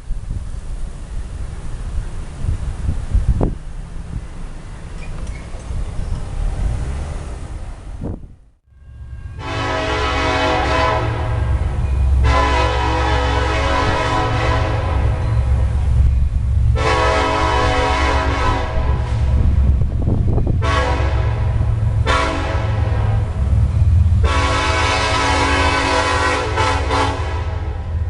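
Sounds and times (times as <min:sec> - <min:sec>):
passing train rumble: 0:00.0 - 0:28.0
locomotive air horn blasts: 0:09.3 - 0:15.7, 0:16.7 - 0:19.4, 0:20.6 - 0:23.4, 0:24.1 - 0:28.0.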